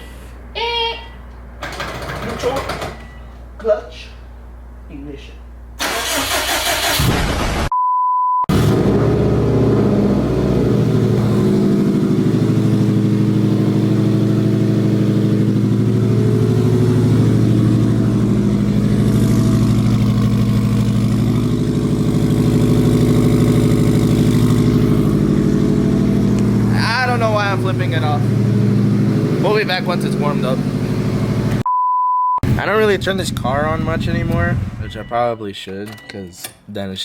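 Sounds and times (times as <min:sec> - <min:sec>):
car starter cranking: 0:05.8 - 0:07.1
censor bleep: 0:07.7 - 0:08.5, 0:31.6 - 0:32.4, 0:34.8 - 0:36.5
car engine idling: 0:08.5 - 0:31.6, 0:32.4 - 0:35.1.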